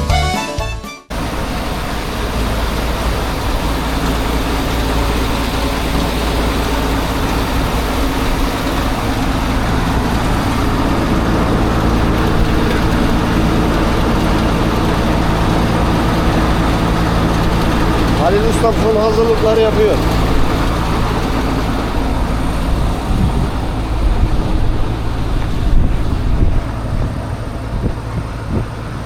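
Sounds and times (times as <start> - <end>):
diesel engine running: 1.1 - 29.0.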